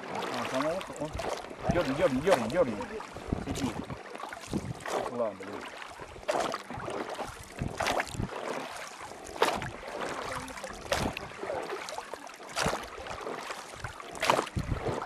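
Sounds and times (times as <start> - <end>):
oars splashing in water: 0.0 - 15.0.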